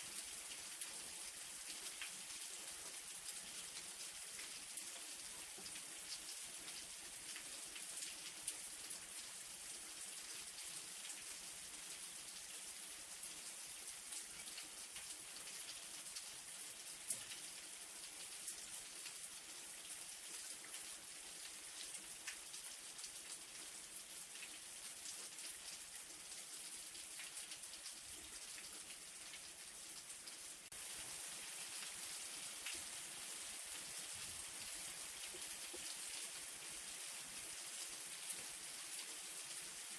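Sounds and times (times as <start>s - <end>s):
light rain falling: 0.0s - 39.9s.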